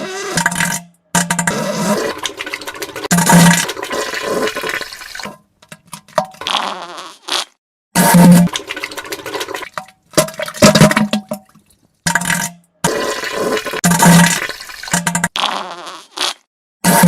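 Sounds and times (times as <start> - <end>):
wet farting sound effects: 0.0 - 17.0.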